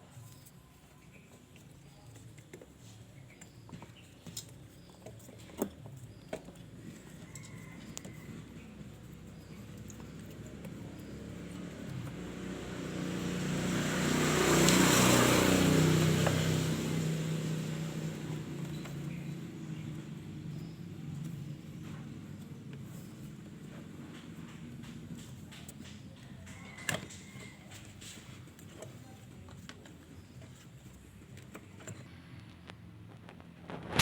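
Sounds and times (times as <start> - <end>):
vehicle driving past: 7.4 - 25.3
hand tools clicking and knocking: 21.2 - 32.1.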